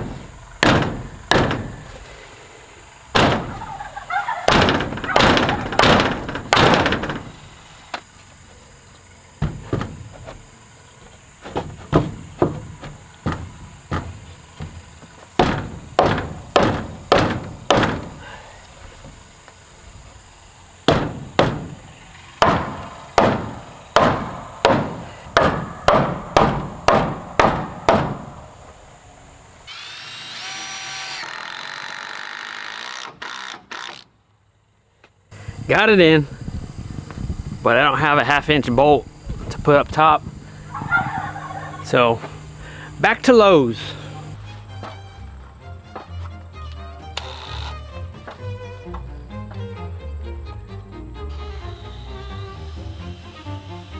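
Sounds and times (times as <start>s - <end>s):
steady whine: 0.0s - 31.3s, 35.3s - 53.9s
hammer blows on wood: 11.6s - 19.2s, 20.9s - 28.5s.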